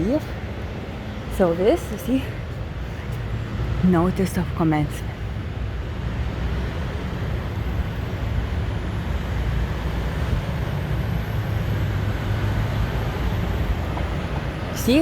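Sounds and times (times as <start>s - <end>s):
vehicle engines rumbling: 0.0s - 15.0s.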